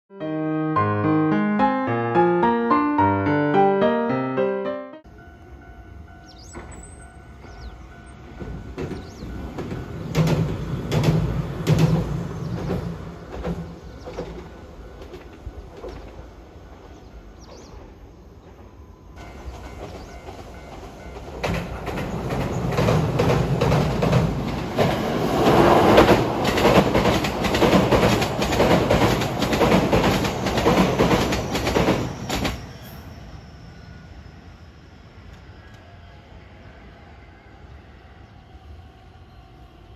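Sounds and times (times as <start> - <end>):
train wheels clattering over bridge: 6.2 - 32.9.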